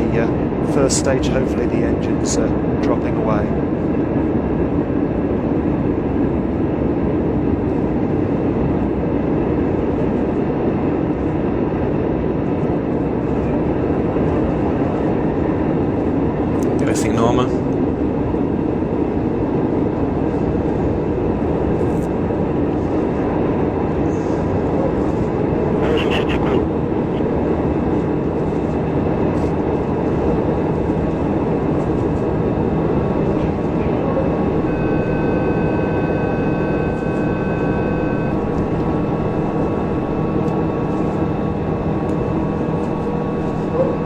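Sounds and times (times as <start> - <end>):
rocket roaring: 25.5 - 27.6, 32.6 - 44.0
steady high tones: 34.5 - 43.7.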